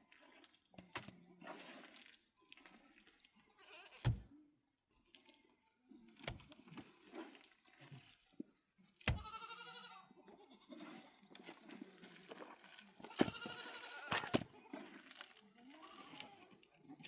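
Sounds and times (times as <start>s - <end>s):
goat bleating: 3.5s - 4.0s, 9.1s - 11.3s, 13.1s - 14.8s, 15.6s - 16.6s.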